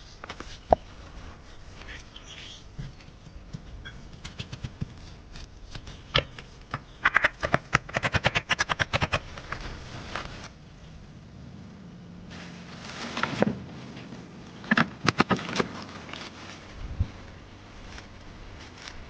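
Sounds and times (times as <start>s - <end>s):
sharp knocks and clicks: 6.1s - 9.2s.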